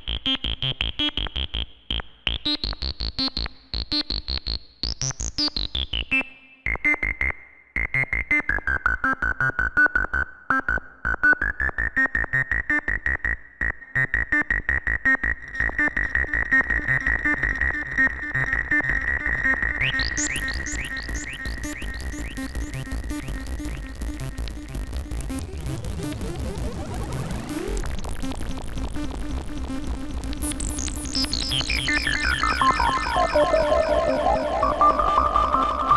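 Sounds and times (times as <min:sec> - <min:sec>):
buzzy synth rising sweeps: 0:26.3 - 0:35.9
sequenced synth notes: 0:26.9 - 0:35.9.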